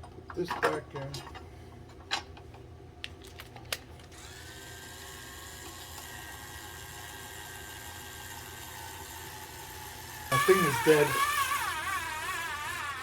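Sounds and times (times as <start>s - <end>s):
small electric motor whining: 4.1s - 13.0s.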